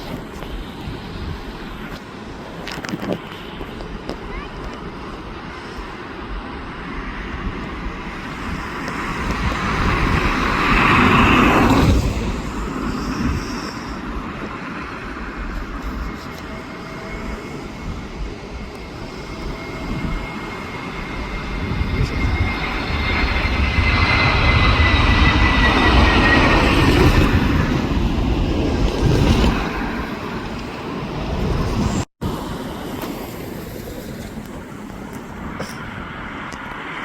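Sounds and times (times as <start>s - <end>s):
airliner passing: 0.0s - 37.0s
high engine whine dropping in pitch: 7.0s - 32.4s.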